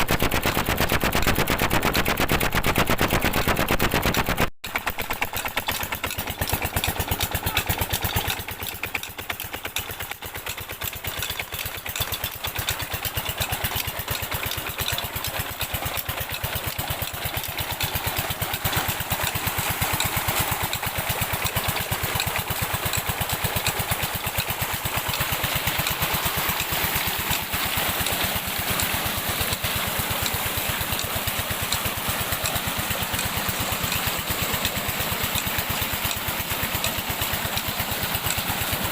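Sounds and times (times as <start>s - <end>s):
diesel engine running pump: 0.0s - 38.9s.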